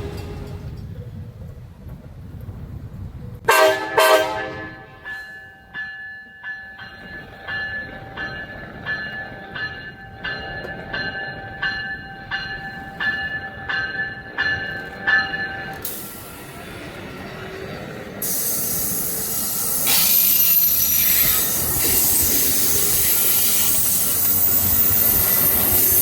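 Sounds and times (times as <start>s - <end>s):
train horn blasts: 0.0s - 0.8s, 3.5s - 5.1s.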